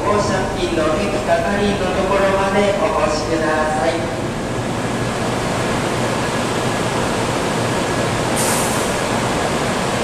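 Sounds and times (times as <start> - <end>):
high-speed train rushing past: 0.0 - 10.0
brief high hiss: 8.4 - 9.0.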